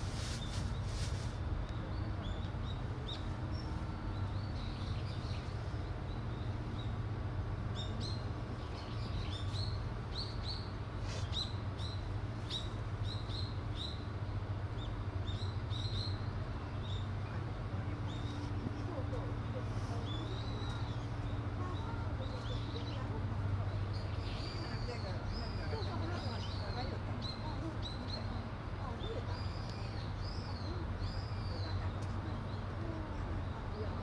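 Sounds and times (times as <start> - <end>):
small birds chirping: 7.7 - 17.4.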